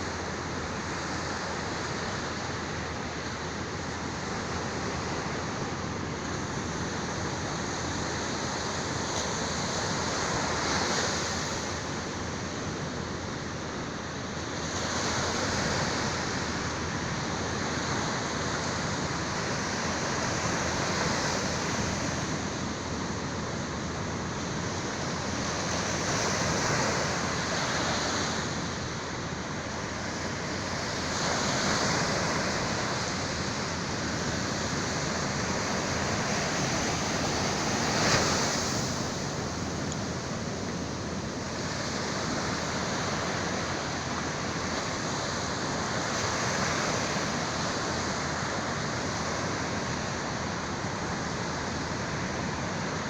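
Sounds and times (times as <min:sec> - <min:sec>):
sea waves washing in: 0:00.0 - 0:53.0.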